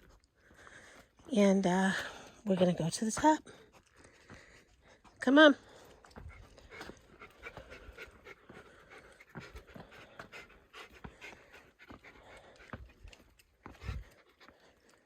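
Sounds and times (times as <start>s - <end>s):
hard fast panting: 2.0s - 15.0s.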